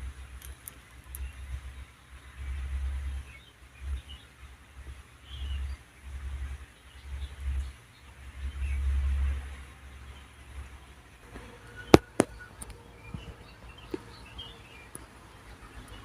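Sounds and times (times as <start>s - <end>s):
sharp cracks: 11.9s - 12.8s.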